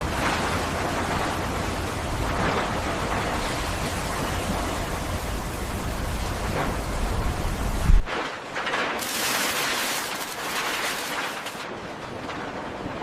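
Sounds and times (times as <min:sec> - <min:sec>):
pressure washer spraying: 0:09.0 - 0:11.6.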